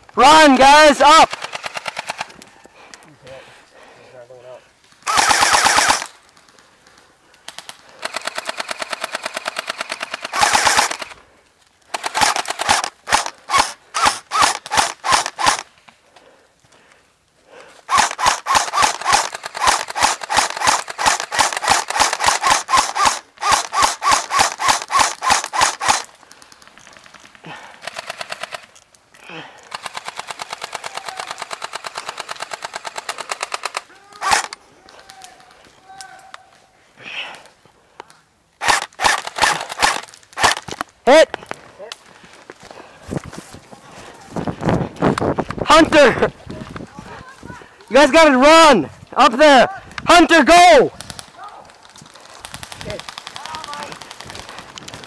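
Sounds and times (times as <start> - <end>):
airsoft guns firing full-auto: 0.2 - 2.4, 5.0 - 6.2, 7.5 - 11.2, 11.9 - 15.7, 17.9 - 28.7, 29.6 - 34.6, 38.6 - 40.8, 50.2 - 55.0.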